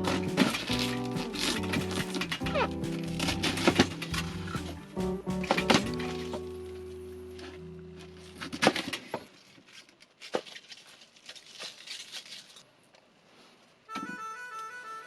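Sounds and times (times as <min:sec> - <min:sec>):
background music: 0:00.0 - 0:08.6
faint crackling: 0:00.0 - 0:09.4.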